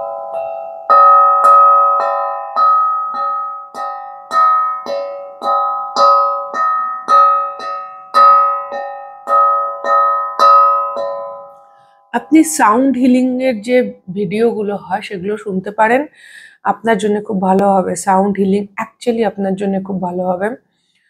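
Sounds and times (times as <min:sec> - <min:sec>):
plucked melodic instrument notes: 0:00.0 - 0:14.4.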